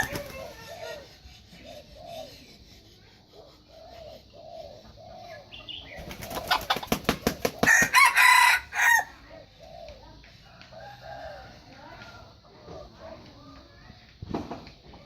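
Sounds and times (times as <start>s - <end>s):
rooster beating wings: 0.0s - 0.6s, 6.0s - 9.0s
rooster crowing: 0.0s - 0.6s, 7.6s - 9.2s, 10.6s - 11.9s.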